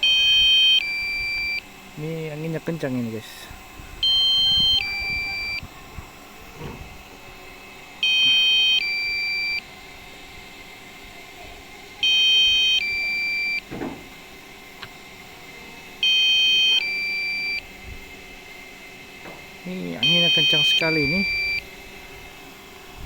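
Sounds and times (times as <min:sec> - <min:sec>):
two-tone electronic warning alarm: 0:00.0 - 0:03.4, 0:04.0 - 0:05.7, 0:08.0 - 0:09.7, 0:12.0 - 0:13.8, 0:16.0 - 0:17.7, 0:19.7 - 0:21.8.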